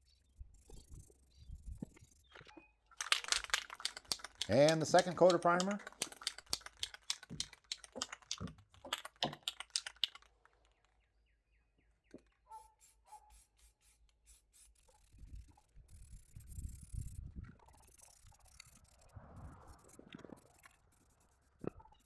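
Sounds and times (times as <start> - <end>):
spray can ball rattling: 3.0 - 10.3.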